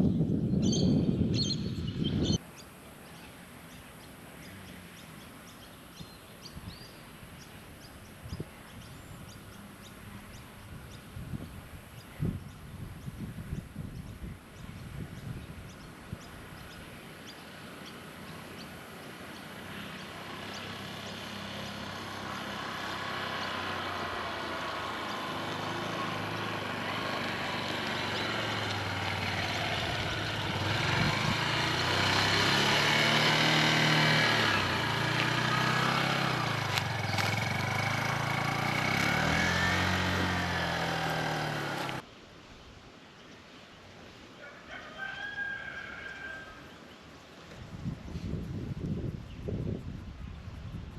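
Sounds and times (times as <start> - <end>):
motorcycle engine approaching: 16.2 - 42.0.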